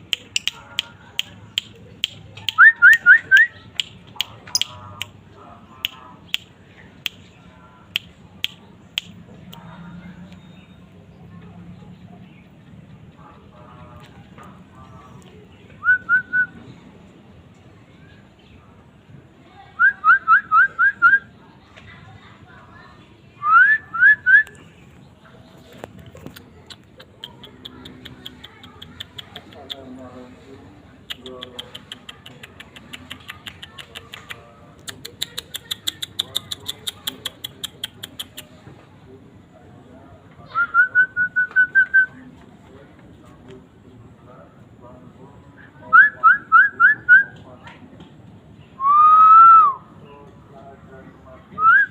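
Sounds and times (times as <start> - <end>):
lovebird chattering chirps: 3.6 - 5.1.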